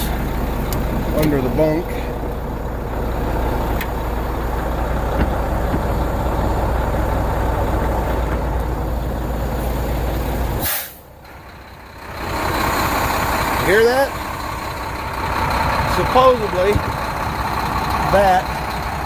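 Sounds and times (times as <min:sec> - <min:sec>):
diesel engine idling: 0:00.0 - 0:19.0
sharp air hiss: 0:10.6 - 0:11.0.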